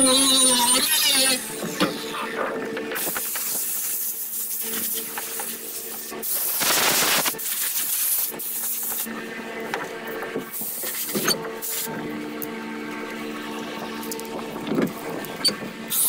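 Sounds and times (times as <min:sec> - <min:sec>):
power grinder grinding: 0:00.0 - 0:02.4.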